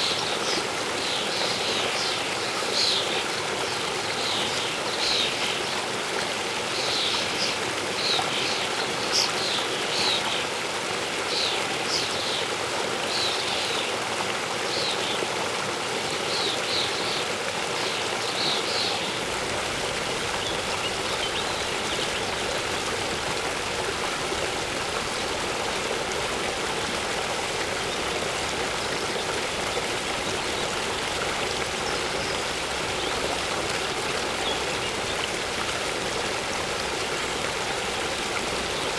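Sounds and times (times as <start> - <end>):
waterfall rushing: 18.7 - 38.9
birds chirping: 19.1 - 38.9.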